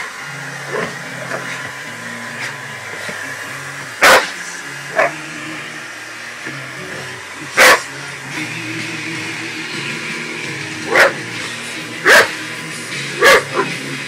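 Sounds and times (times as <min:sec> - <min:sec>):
hairdryer humming: 0:00.0 - 0:14.0
dog barking: 0:04.0 - 0:04.3, 0:07.6 - 0:07.9, 0:10.9 - 0:11.2, 0:12.0 - 0:12.3, 0:13.2 - 0:13.7.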